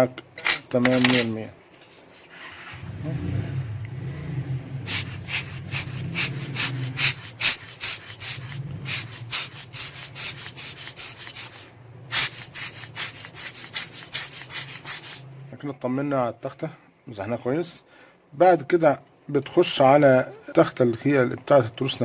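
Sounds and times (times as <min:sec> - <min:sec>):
quick rubbing strokes: 0:01.8 - 0:02.7, 0:04.8 - 0:15.4.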